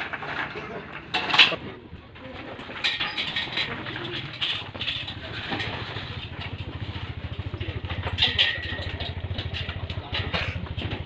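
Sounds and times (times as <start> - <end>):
engine idling: 3.5 - 11.0.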